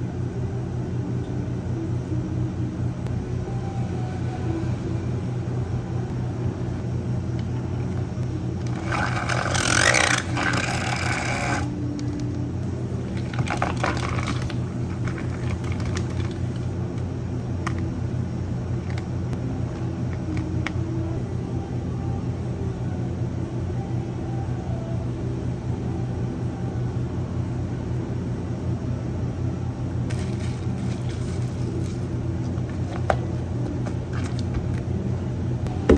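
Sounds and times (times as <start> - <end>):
low machine hum: 0.0 - 35.9
utensils and cups clicking: 8.7 - 12.2, 30.1 - 34.8.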